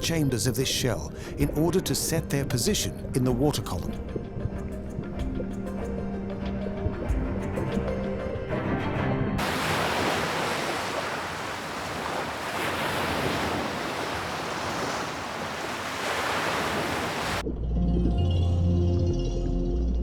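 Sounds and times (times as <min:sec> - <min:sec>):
ocean surf rushing: 0:09.4 - 0:17.4.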